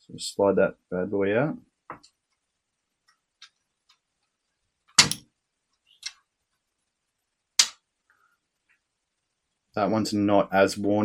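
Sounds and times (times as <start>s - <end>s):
small metal parts clicking: 5.0s - 5.2s.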